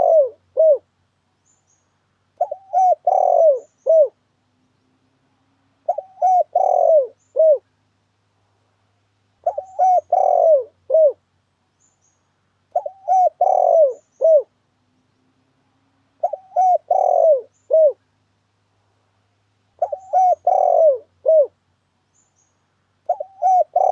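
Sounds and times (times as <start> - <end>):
dove cooing: 0.0 - 0.9, 2.4 - 4.2, 5.8 - 7.7, 9.4 - 11.2, 12.7 - 14.6, 16.2 - 18.0, 19.8 - 21.6, 23.0 - 23.9.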